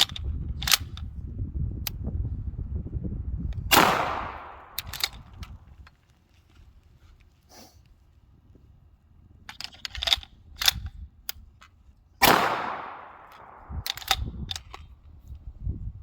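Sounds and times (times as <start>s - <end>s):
sharp gunshot cracks: 3.7s - 5.2s, 12.2s - 14.2s.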